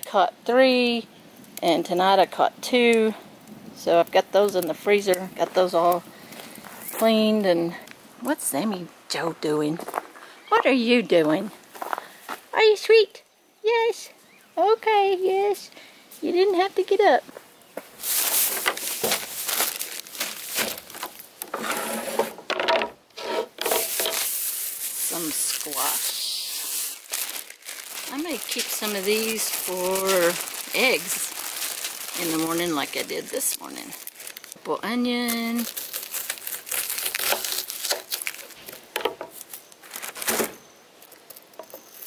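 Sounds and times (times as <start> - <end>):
plastic bags crinkling: 18.0 - 21.5, 23.6 - 42.0.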